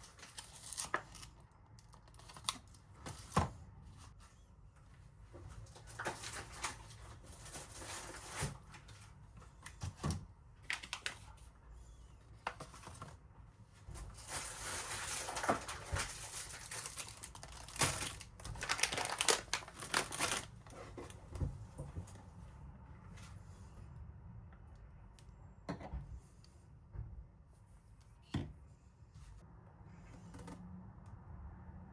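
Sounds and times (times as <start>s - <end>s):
packaging crinkling and rustling: 0.0s - 3.4s, 5.6s - 9.1s, 10.6s - 11.5s, 13.9s - 21.5s.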